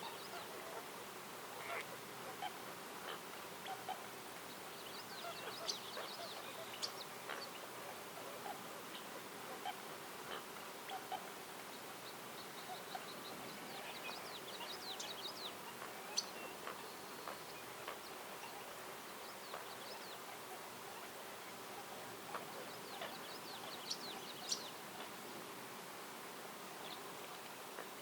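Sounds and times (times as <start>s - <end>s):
background hiss: 0.0s - 28.0s
songbirds chirping: 0.0s - 28.0s.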